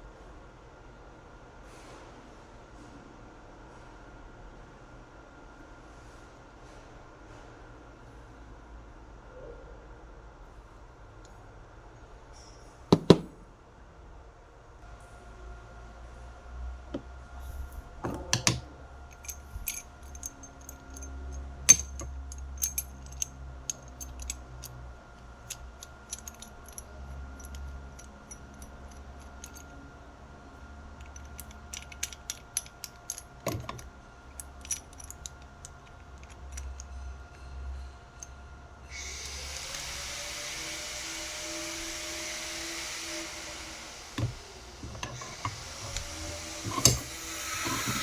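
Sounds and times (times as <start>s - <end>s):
steady low hum: 14.7s - 39.1s
metal parts clinking: 17.0s - 29.9s, 30.9s - 37.5s, 44.2s - 48.0s.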